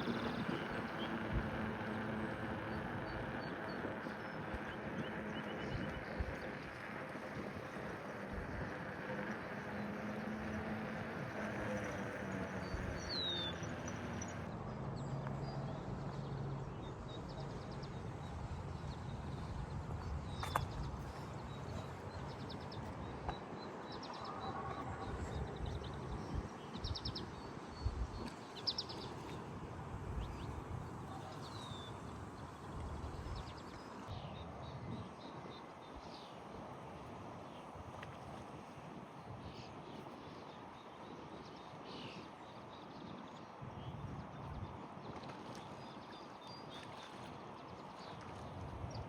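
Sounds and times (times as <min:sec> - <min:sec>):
bicycle rolling noise: 0:00.0 - 0:26.5
birds chirping: 0:00.0 - 0:29.4.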